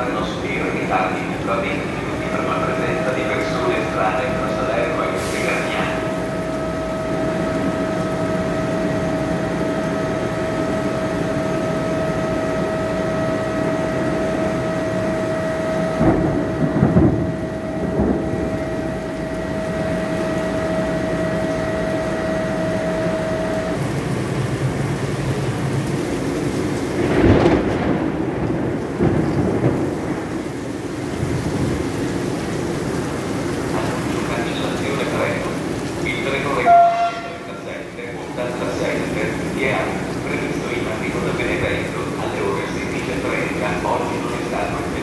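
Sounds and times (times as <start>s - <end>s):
train rumbling: 0.0s - 45.0s.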